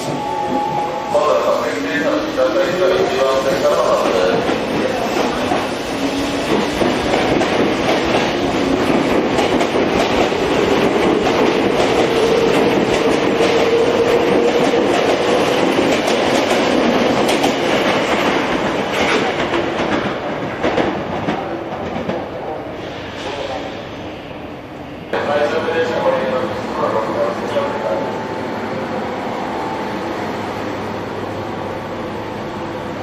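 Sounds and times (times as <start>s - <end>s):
train wheels clacking over rail joints: 6.5s - 22.2s.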